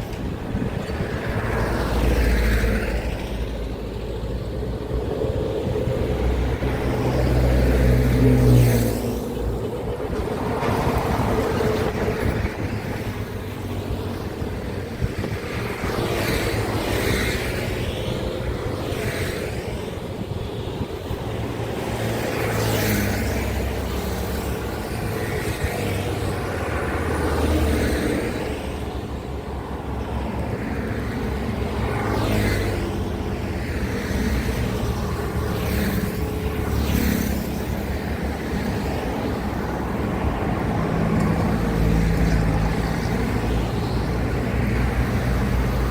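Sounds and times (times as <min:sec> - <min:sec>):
heavy engines droning: 0:00.0 - 0:15.7
vehicles passing: 0:00.0 - 0:45.9.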